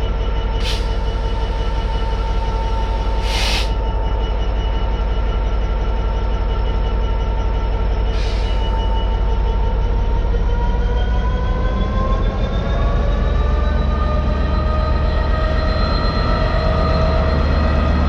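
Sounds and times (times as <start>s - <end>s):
freight train rumbling past: 0.0s - 18.0s
short hisses: 0.6s - 1.0s, 3.2s - 3.8s.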